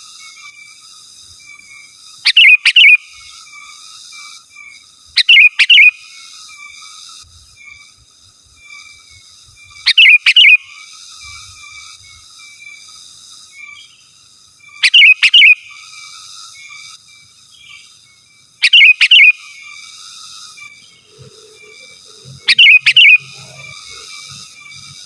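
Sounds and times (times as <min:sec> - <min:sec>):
bird chattering: 0:02.3 - 0:03.0, 0:05.2 - 0:05.9, 0:09.9 - 0:10.6, 0:14.8 - 0:15.6, 0:18.6 - 0:19.5, 0:20.8 - 0:25.0
bulbul calling sharp notes: 0:09.9 - 0:10.6, 0:14.8 - 0:15.6, 0:18.6 - 0:19.6, 0:20.7 - 0:25.0.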